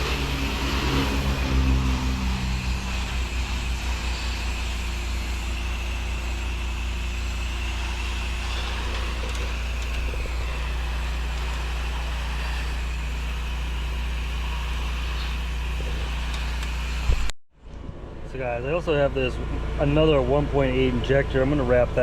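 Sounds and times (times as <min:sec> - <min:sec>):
pressure washer engine running: 0:00.0 - 0:17.3.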